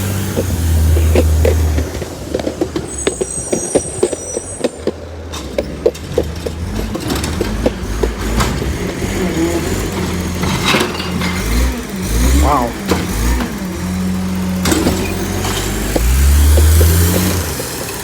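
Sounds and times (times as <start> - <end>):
metallic clanks and knocks: 0.0 - 12.1
truck engine revving: 0.0 - 18.0.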